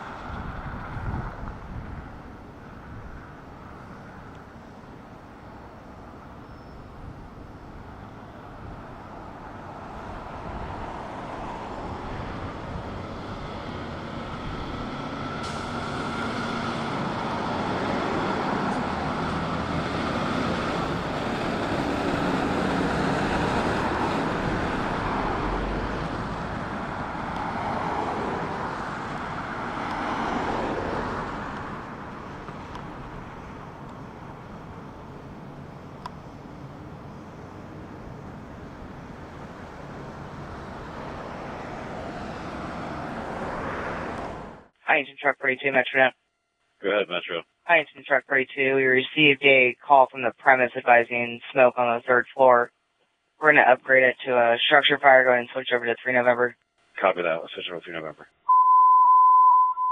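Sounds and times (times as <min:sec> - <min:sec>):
truck driving past: 0:05.4 - 0:44.8.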